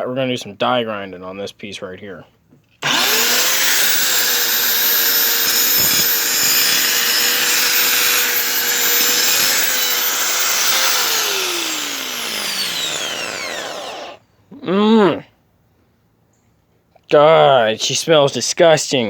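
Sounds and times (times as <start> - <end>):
die grinder whining: 2.8 - 14.2
grinder spinning down: 2.8 - 14.2.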